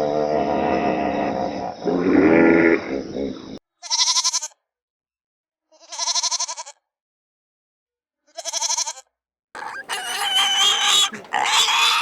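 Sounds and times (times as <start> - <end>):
harsh animal call: 9.6 - 12.0
sheep bleating: 9.6 - 12.0.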